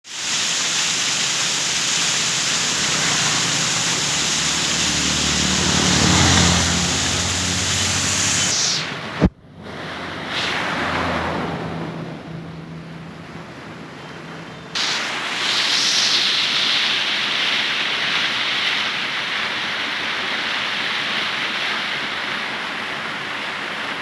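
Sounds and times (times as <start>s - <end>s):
waterfall rushing: 0.0s - 11.2s
low drone: 1.6s - 14.5s.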